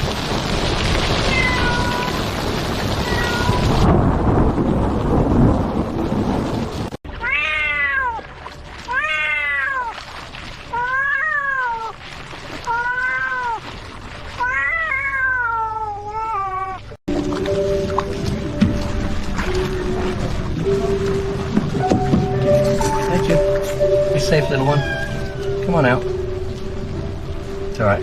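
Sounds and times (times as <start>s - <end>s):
cat meowing: 1.3s - 2.2s, 3.0s - 3.8s, 7.2s - 8.2s, 8.9s - 9.9s, 12.7s - 13.6s, 14.4s - 16.9s, 24.4s - 25.6s.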